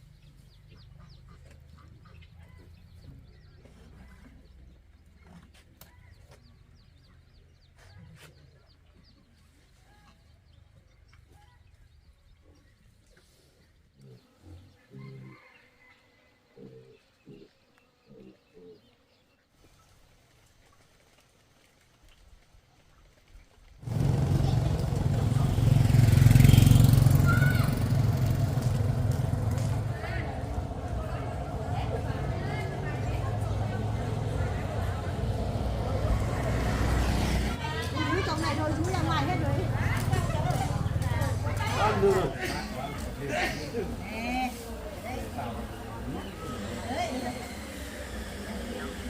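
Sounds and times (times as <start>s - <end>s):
chickens clucking and peeping: 0.0s - 19.4s
bird chirping: 0.0s - 19.9s
vehicle engine running: 23.8s - 49.0s.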